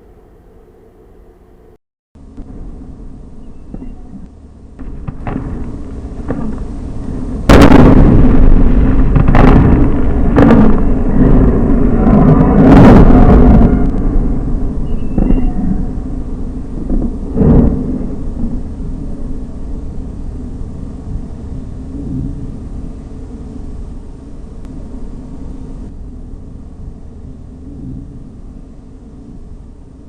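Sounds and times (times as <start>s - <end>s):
low rumble: 0.0s - 30.0s
heavy roar: 4.8s - 19.6s
loud explosion blast: 4.8s - 23.6s
sharp cracks: 7.4s - 14.2s.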